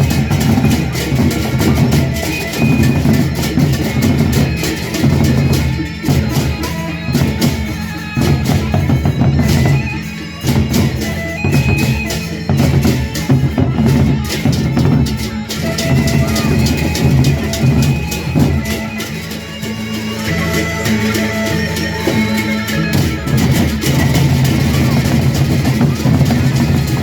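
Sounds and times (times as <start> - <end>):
held melodic notes: 0.0 - 27.0
large drums pounding: 22.0 - 27.0.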